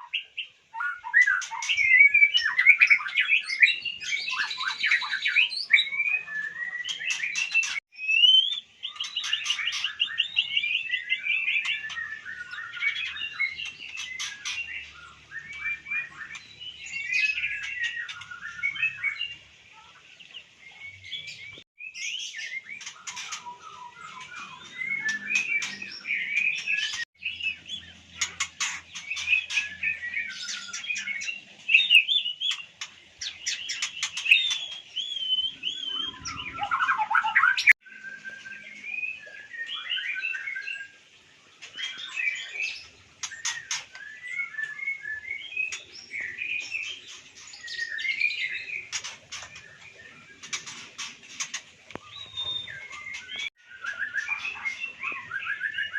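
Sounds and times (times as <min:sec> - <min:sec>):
bird singing chirps and whistles: 0:00.0 - 0:19.4, 0:20.7 - 0:41.0, 0:41.6 - 0:55.9.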